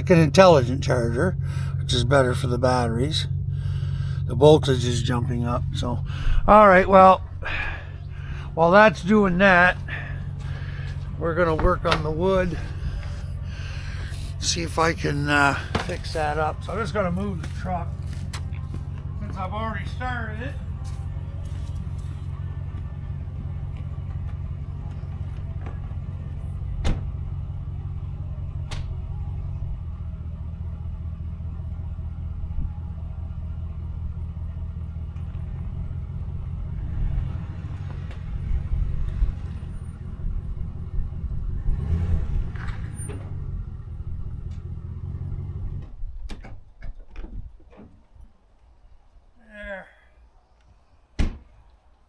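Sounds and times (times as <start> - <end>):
truck engine running: 0.0 - 46.3.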